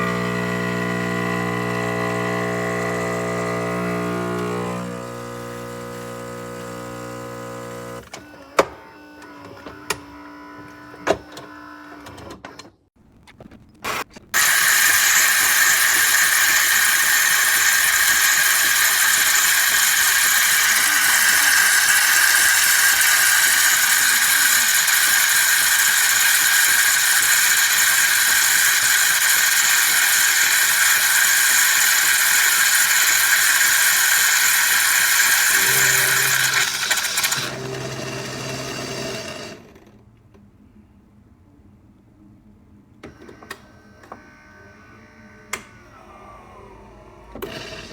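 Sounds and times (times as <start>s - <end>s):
espresso machine hum: 0.0s - 8.1s, 14.4s - 39.6s
espresso machine rushing noise: 0.0s - 8.3s, 14.4s - 39.9s.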